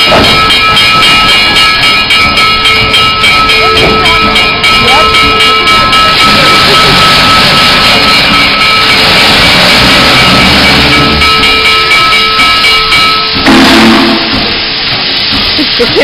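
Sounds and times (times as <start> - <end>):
steam escaping: 0.0 - 16.0
steam locomotive whistle: 13.4 - 14.6.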